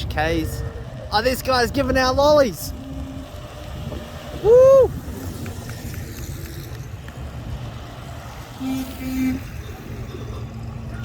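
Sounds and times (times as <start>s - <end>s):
car engines rumbling: 0.0s - 11.0s
low car horn toots: 8.5s - 9.8s.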